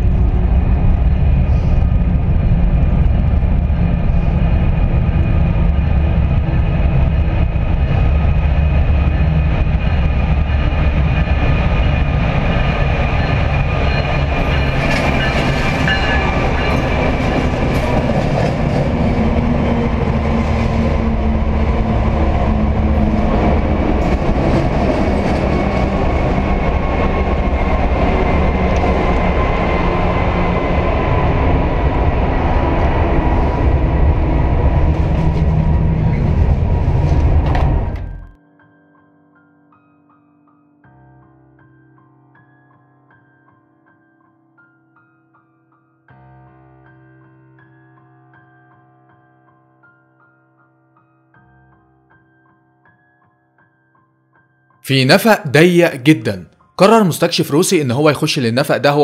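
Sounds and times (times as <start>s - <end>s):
train wheels rumbling on rails: 0.0s - 38.3s.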